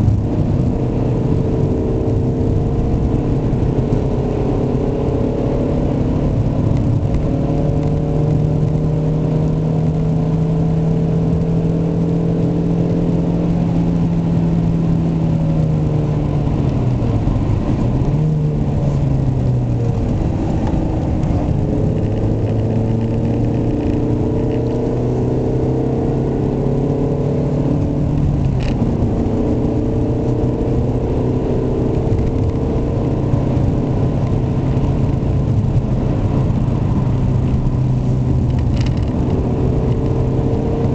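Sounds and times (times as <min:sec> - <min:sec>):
car engine running: 0:00.0 - 0:40.9.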